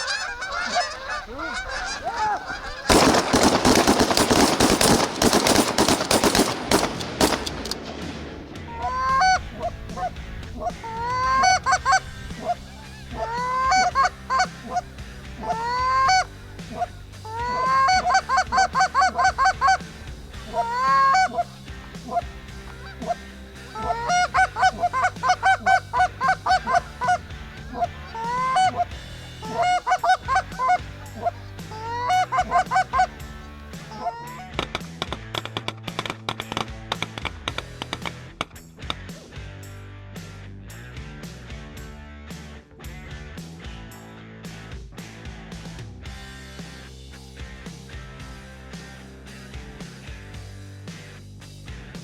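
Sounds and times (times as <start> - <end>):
geese honking: 0.0 - 7.8, 8.5 - 34.6.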